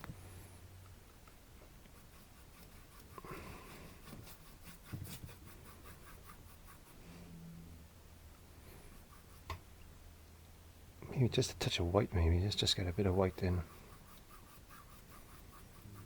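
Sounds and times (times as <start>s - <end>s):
paintbrush strokes on canvas: 1.6s - 7.3s, 8.6s - 9.6s, 11.6s - 16.0s.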